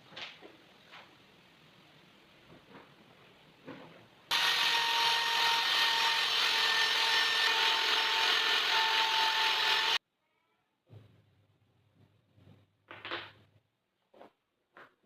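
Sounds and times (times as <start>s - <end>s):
electric power tool working wood: 4.3s - 10.0s.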